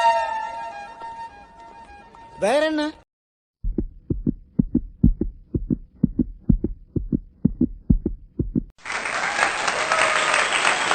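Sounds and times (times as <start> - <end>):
heartbeat thumps: 3.6 - 8.8
applause: 8.8 - 10.9.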